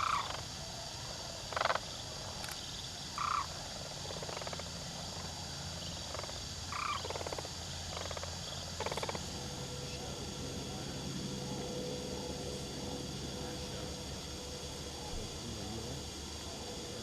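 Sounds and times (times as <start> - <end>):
steady low hum: 0.0 - 17.0
cranes calling: 3.2 - 3.5, 6.1 - 15.4.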